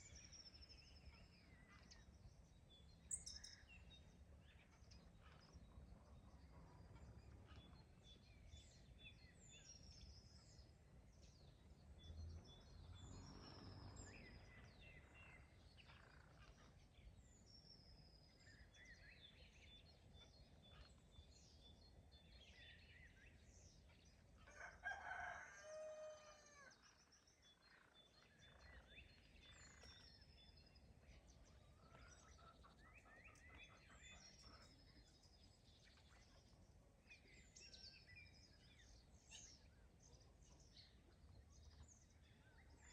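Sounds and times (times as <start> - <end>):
faint songbird chirping: 0.0 - 42.9
rooster crowing: 24.5 - 26.7.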